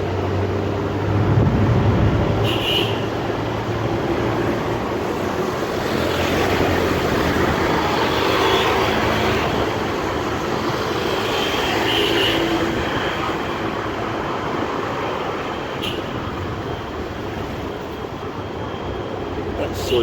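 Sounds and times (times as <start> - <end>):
road traffic engines and tyres: 0.0 - 20.0.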